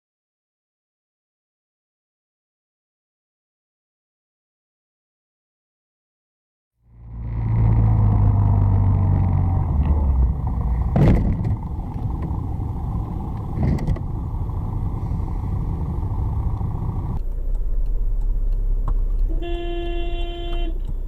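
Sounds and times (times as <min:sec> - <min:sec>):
car engine: 0:06.8 - 0:21.0
road noise: 0:06.8 - 0:21.0.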